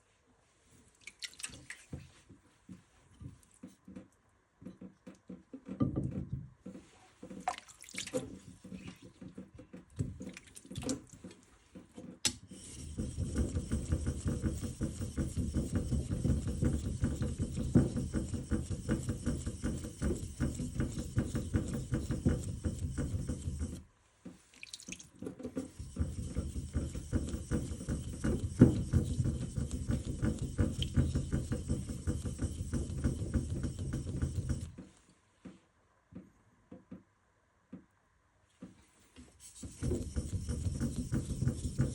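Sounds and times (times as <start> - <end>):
water splashes and drips: 0.9 - 2.1, 7.3 - 9.0, 10.2 - 11.4, 24.5 - 25.2.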